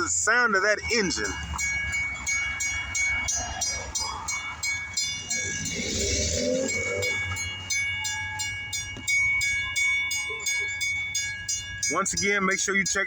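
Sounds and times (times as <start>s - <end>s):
crossing bell ringing: 0.0s - 13.0s
diesel locomotive engine rumbling: 0.0s - 13.0s
wavering high-pitched sound: 0.9s - 8.7s.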